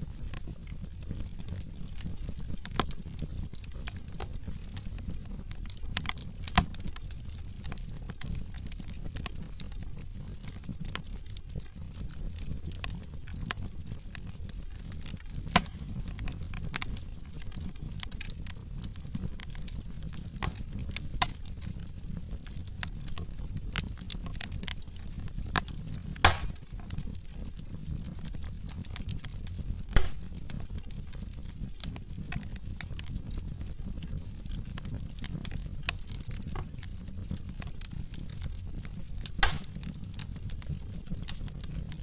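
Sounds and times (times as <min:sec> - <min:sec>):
low fire rumble: 0:00.0 - 0:42.0
wood fire crackling: 0:00.0 - 0:42.0
loud wood pops: 0:15.4 - 0:16.4, 0:26.2 - 0:26.7, 0:29.9 - 0:30.4, 0:39.4 - 0:39.8.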